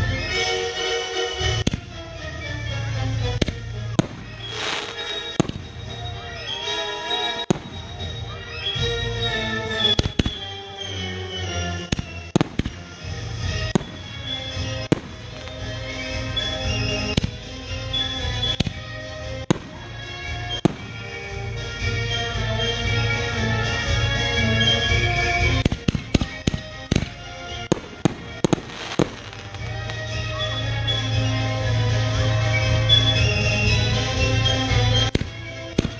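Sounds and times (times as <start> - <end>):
music playing: 0.0 - 35.9
fireworks crackle: 0.1 - 35.9
fireworks bangs: 1.4 - 22.0, 25.4 - 31.4, 34.8 - 35.9.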